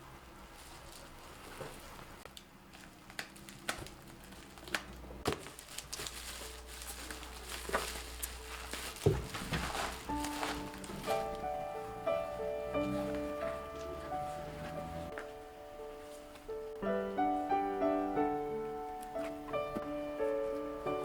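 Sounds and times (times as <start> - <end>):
rustling of small objects: 0.0 - 17.6
music notes: 8.0 - 21.0.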